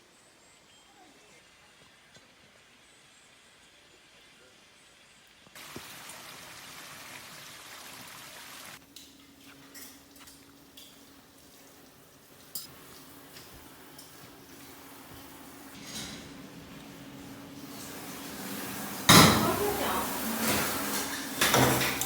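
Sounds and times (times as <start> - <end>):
rain hissing: 5.5 - 8.8, 10.5 - 22.0
water drips and ticks: 8.8 - 15.3.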